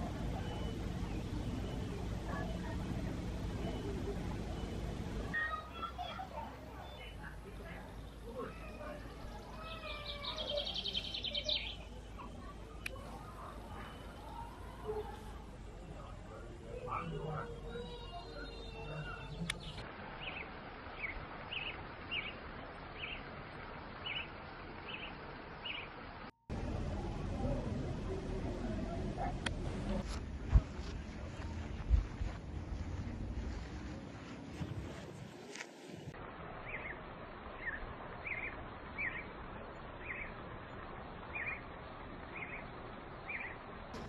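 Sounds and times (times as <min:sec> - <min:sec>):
outdoor background hiss: 0:00.0 - 0:44.0
bird chirping: 0:00.1 - 0:23.3, 0:24.0 - 0:26.0, 0:36.6 - 0:37.0, 0:37.6 - 0:40.4, 0:41.2 - 0:44.0
small bird chirping: 0:05.3 - 0:15.3, 0:24.0 - 0:24.3, 0:42.3 - 0:43.6.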